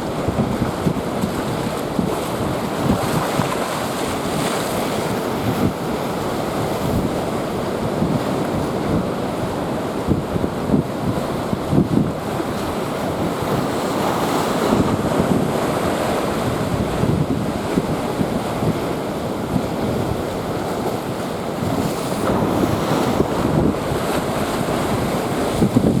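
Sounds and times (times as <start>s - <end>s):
gusty wind buffeting microphone: 0.0s - 26.0s
breaking surf: 20.5s - 26.0s.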